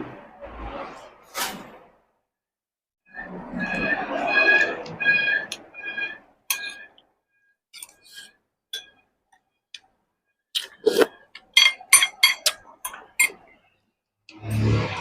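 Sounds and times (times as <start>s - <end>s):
tableware clinking on bowls: 10.8s - 13.4s.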